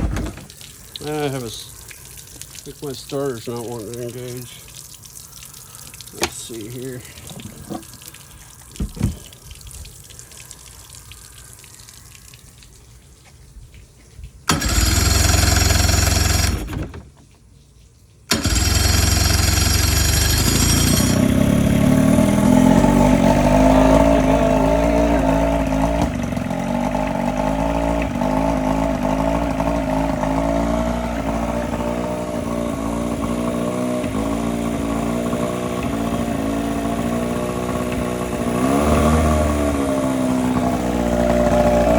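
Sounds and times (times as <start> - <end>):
electric starter cranking: 14.5 - 17.0, 18.3 - 41.9
outboard motor running: 14.5 - 17.0, 18.3 - 41.9.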